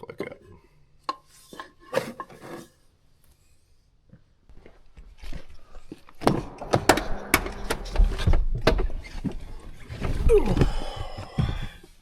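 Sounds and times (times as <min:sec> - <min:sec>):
sharp clunks and knocks: 0:06.2 - 0:09.5
rattling: 0:06.2 - 0:10.3.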